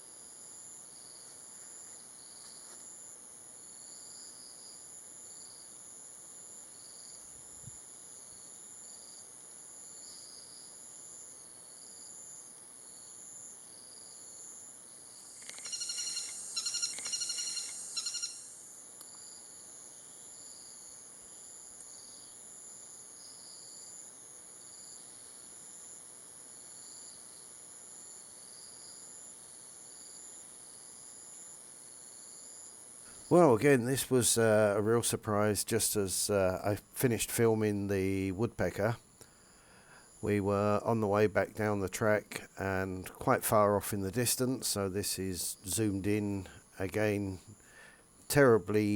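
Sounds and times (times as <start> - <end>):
insects buzzing and chirping: 0.0 - 48.9
rapid evenly pitched calls: 15.4 - 18.6.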